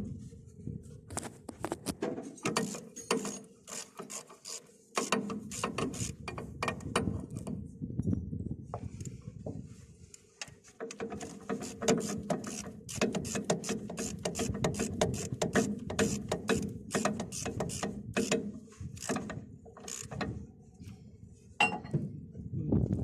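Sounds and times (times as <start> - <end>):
ratchet wrench clicking: 11.2 - 20.3.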